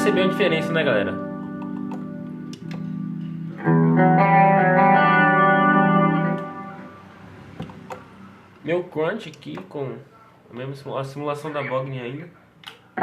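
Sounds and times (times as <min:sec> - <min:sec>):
distorted electric guitar chords: 0:00.0 - 0:08.3.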